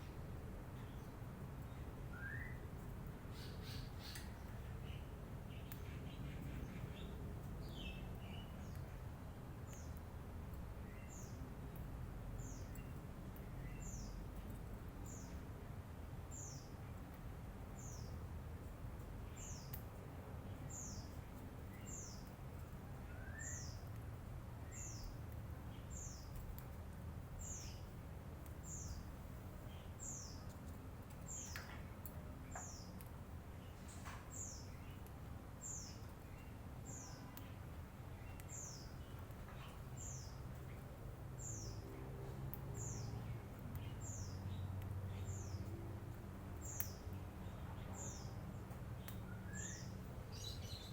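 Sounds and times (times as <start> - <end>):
lovebird chirping: 2.1 - 2.7, 3.3 - 8.9, 23.0 - 23.9, 49.0 - 50.9.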